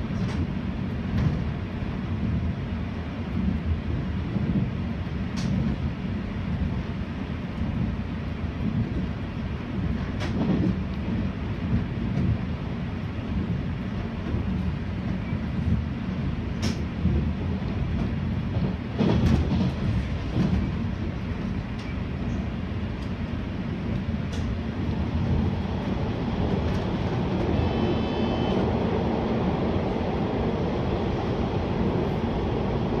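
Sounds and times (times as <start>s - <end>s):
train wheels rumbling on rail: 0.0s - 33.0s
sharp track clicks: 23.9s - 25.1s.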